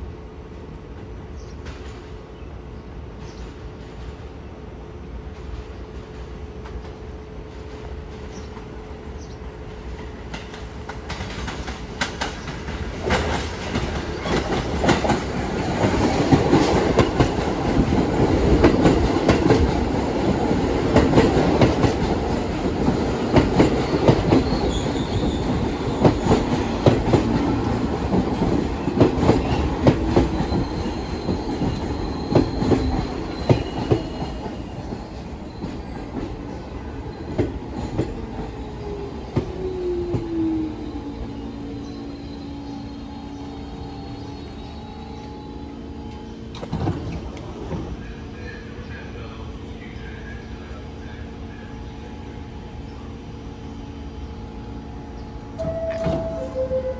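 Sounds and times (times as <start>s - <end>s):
subway train passing: 0.0s - 56.9s
wheels clacking over rail joints: 10.3s - 40.4s
high wheel squeal: 24.4s - 26.0s, 30.3s - 36.1s, 40.4s - 45.7s.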